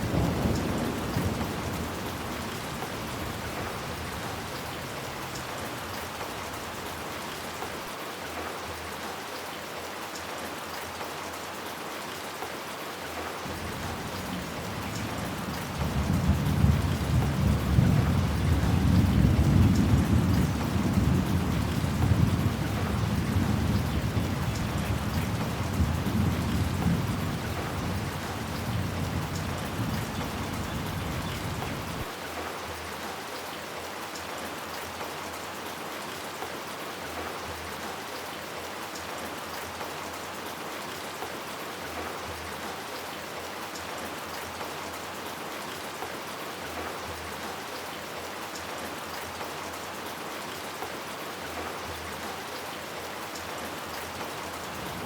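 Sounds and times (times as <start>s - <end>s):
low rumble of thunder: 0.0s - 5.2s, 13.5s - 32.1s
steady rain falling: 0.0s - 55.0s.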